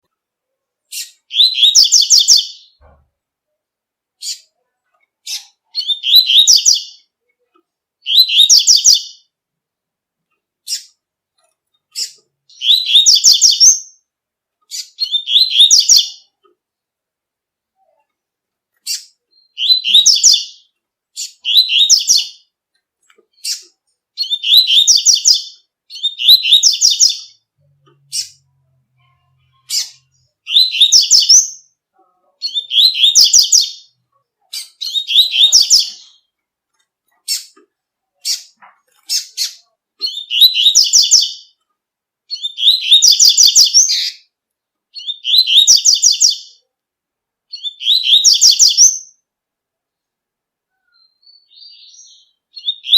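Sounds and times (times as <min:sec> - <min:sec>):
bird singing high phrases: 0:00.8 - 0:03.0, 0:04.2 - 0:07.2, 0:08.0 - 0:09.4, 0:10.6 - 0:11.0, 0:11.9 - 0:14.1, 0:14.7 - 0:16.5, 0:18.8 - 0:22.6, 0:23.3 - 0:36.4, 0:38.2 - 0:41.6, 0:42.3 - 0:46.7, 0:47.5 - 0:49.3, 0:50.7 - 0:52.9.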